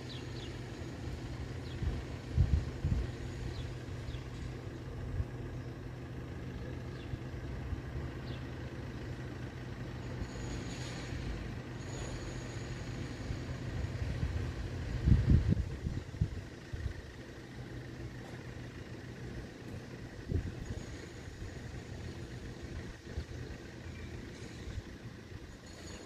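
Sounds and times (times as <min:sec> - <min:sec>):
road vehicle engines humming: 0:00.0 - 0:26.0.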